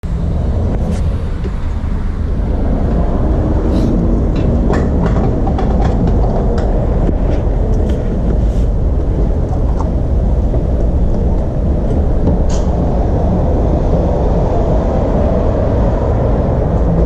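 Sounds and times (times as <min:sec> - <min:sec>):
wind and road rumble: 0:00.0 - 0:17.0
bicycle clicks and rattles: 0:04.0 - 0:12.8.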